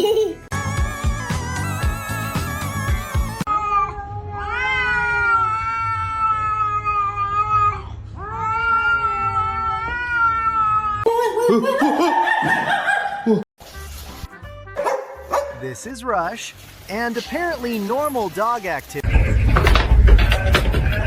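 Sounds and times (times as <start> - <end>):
cat yowling: 1.9 - 11.1.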